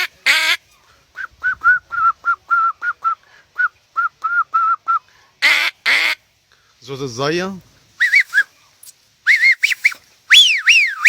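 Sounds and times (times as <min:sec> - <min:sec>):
man whistling bird call: 0:01.2 - 0:05.0, 0:08.0 - 0:08.5, 0:09.2 - 0:11.0.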